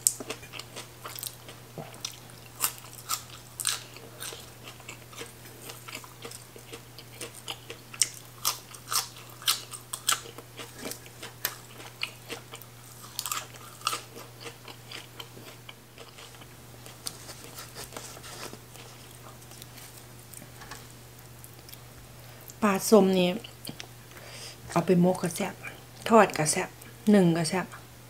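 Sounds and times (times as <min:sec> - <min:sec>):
person crunching raw greens: 0:00.0 - 0:20.6.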